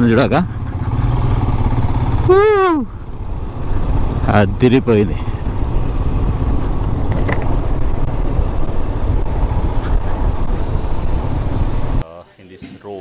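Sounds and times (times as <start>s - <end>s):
motorcycle engine running: 0.0s - 12.0s
wind buffeting microphone: 3.0s - 12.0s.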